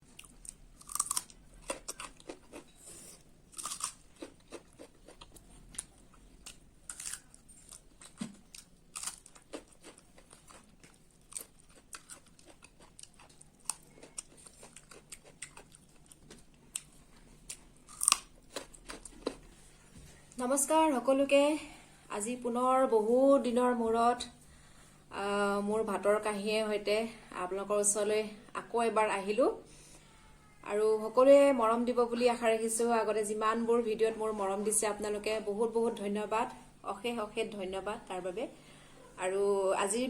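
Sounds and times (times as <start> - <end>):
crunching and chewing: 0.0 - 19.7.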